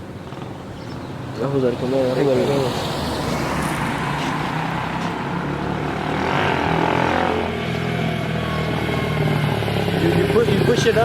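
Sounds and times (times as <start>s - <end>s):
dirt bike engine revving: 4.7s - 11.0s.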